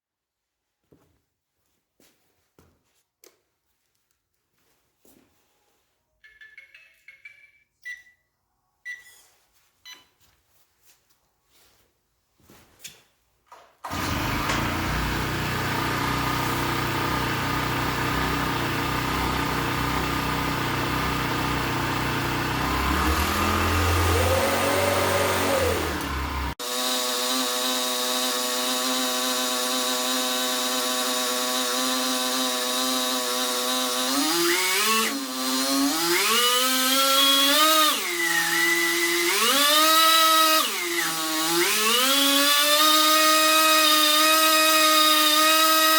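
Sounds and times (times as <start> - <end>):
motor whine rising and falling: 13.9 - 26.6
machinery whirring: 13.9 - 27.2.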